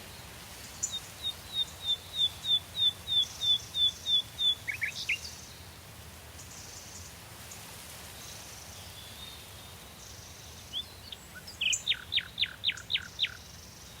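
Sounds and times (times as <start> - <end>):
faint distant bird calls: 0.0 - 5.7.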